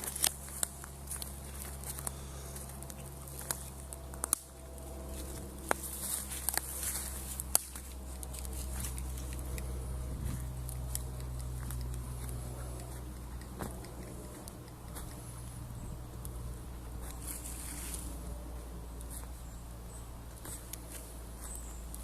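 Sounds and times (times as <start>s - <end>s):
light taps and footsteps: 0.0s - 22.0s
steady low hum: 0.0s - 22.0s
sharp clicks: 10.6s - 17.2s.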